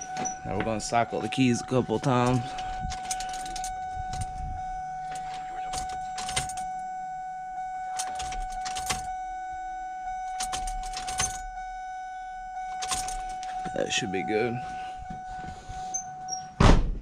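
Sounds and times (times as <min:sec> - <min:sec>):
ignition key clicks: 0:00.0 - 0:06.9, 0:07.8 - 0:09.2, 0:10.1 - 0:11.7, 0:12.7 - 0:13.8
keys jangling on key ring: 0:02.2 - 0:04.4, 0:05.0 - 0:06.7, 0:07.9 - 0:09.1, 0:10.2 - 0:11.5, 0:12.8 - 0:13.6.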